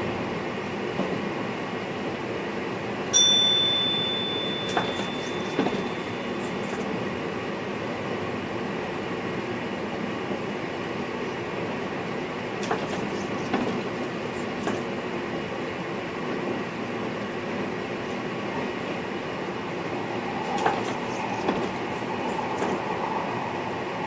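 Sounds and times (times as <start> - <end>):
train wheels rumbling on rails: 0.0 - 24.0
bell-like chime: 3.2 - 6.6.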